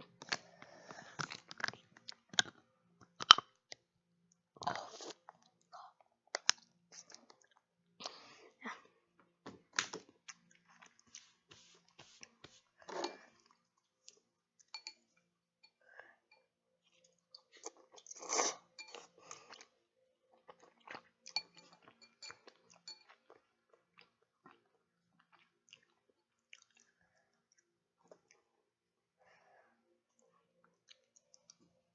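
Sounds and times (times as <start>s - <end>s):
person chewing food: 0.1s - 3.4s, 6.3s - 8.2s, 9.8s - 15.0s, 16.8s - 28.6s.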